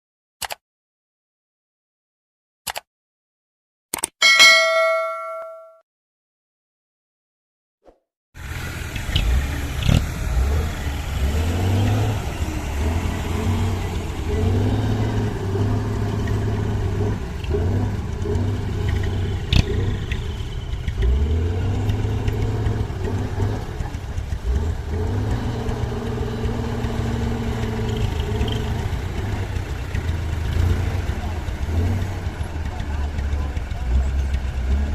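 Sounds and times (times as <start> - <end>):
diesel truck engine revving: 8.4 - 34.9.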